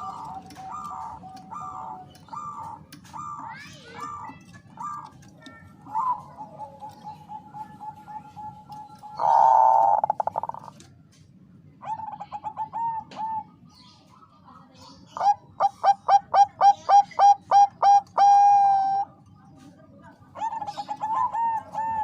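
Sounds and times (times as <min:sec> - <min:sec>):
dove cooing: 0:00.0 - 0:10.9, 0:11.8 - 0:13.6, 0:15.2 - 0:19.2, 0:20.3 - 0:22.0
dove rattling trill: 0:00.0 - 0:11.0, 0:15.1 - 0:19.2, 0:20.3 - 0:22.0.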